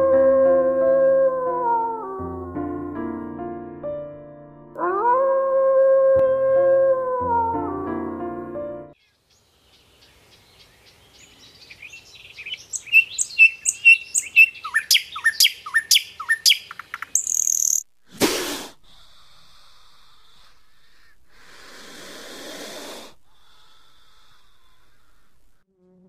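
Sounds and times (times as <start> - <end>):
songbird singing: 9.0 - 17.9
snake hissing: 18.1 - 25.3.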